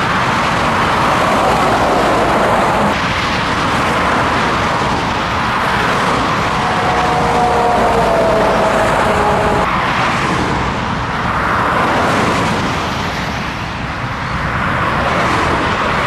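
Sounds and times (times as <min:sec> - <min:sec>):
truck engine: 0:00.0 - 0:11.4
road noise: 0:00.0 - 0:16.0.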